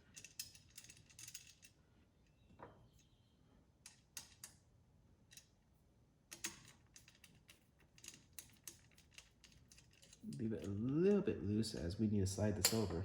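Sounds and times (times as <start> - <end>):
small metal parts clicking: 6.3 - 10.8.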